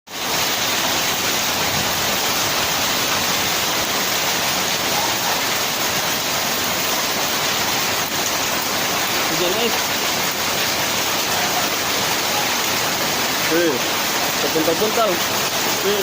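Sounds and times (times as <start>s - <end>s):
hail and heavy rain pelting: 0.1s - 16.0s.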